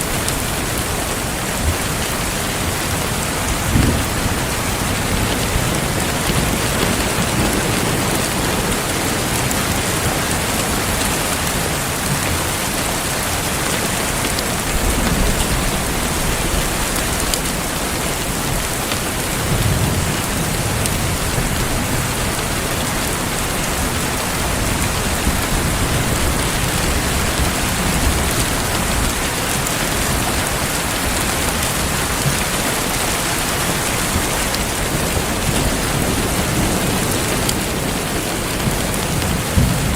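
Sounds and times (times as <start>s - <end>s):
heavy rain falling: 0.0s - 39.9s
low rumbles: 3.4s - 6.0s.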